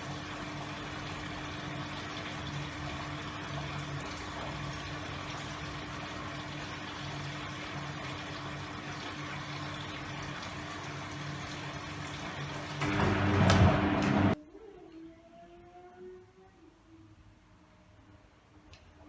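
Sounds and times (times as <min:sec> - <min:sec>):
washing machine water noise: 0:00.0 - 0:14.4
motor drone as drum turns: 0:12.4 - 0:14.4.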